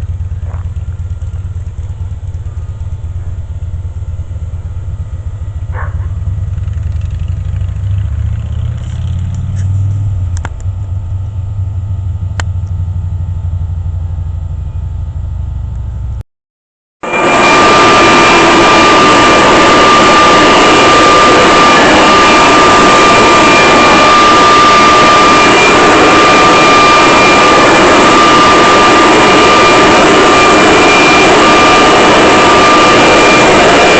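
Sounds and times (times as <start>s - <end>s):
motorcycle engine idling: 0.0s - 16.2s.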